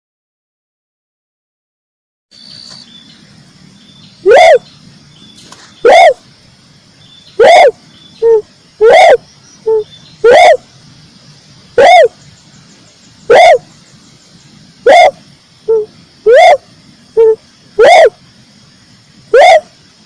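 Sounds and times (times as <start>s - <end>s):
dove call hooting: 4.2s - 4.7s, 5.8s - 6.3s, 7.3s - 10.7s, 11.6s - 12.4s, 13.1s - 13.8s, 14.8s - 18.2s, 19.3s - 19.8s.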